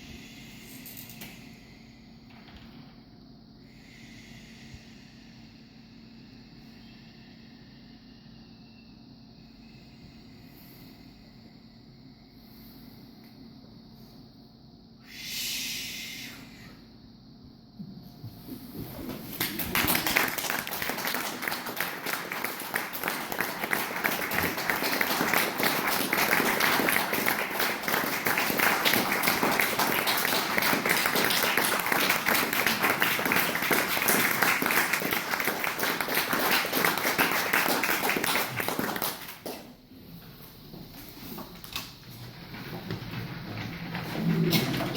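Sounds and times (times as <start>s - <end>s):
audience applauding: 19.0s - 39.7s.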